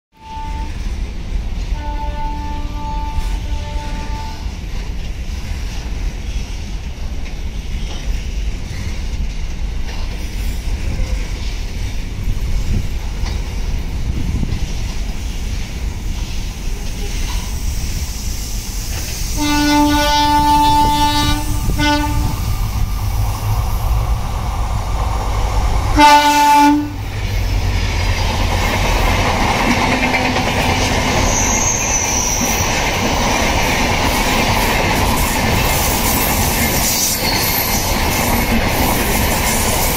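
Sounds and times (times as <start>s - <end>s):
train horn blasts: 0.1s - 0.9s, 1.7s - 4.6s, 19.3s - 22.9s, 25.9s - 27.2s
freight train rumbling on rails: 0.2s - 39.9s
train wheel clatter: 0.7s - 39.9s.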